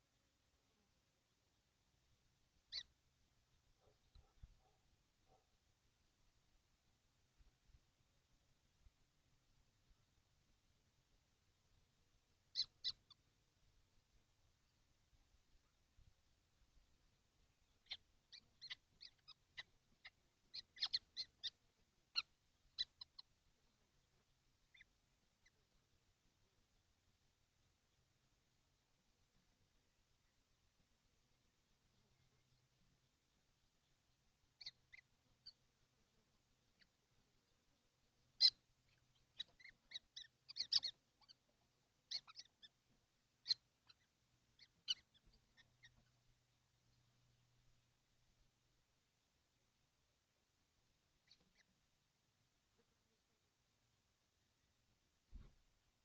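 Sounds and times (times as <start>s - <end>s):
faint low hum: 0.0s - 56.0s
kestrels high calls: 2.7s - 3.0s, 12.5s - 13.3s, 17.6s - 23.3s, 24.6s - 25.6s, 34.5s - 35.7s, 38.2s - 46.3s, 51.2s - 51.8s.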